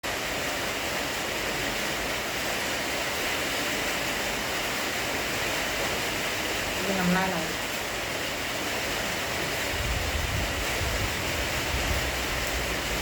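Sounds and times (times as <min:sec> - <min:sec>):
storm rushing noise: 0:09.7 - 0:13.0.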